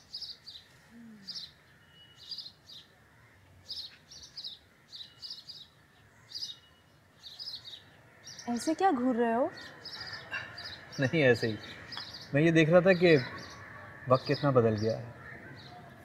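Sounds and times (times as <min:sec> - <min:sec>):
faint background noise: 0:00.0 - 0:16.0
small birds chirping: 0:00.0 - 0:16.0.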